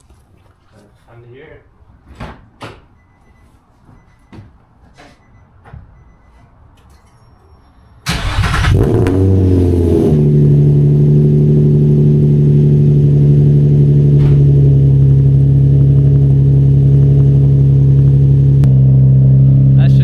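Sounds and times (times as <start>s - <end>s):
car engine starting and idling: 6.0s - 20.0s.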